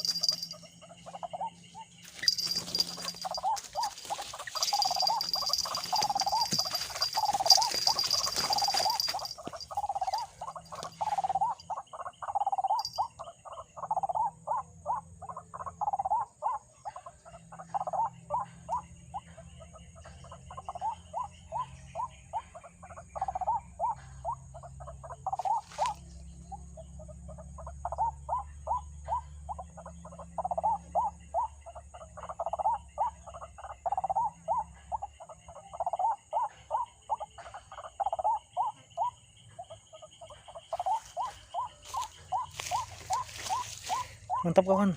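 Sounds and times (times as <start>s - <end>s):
waterhen croaking calls: 40.5s - 44.9s.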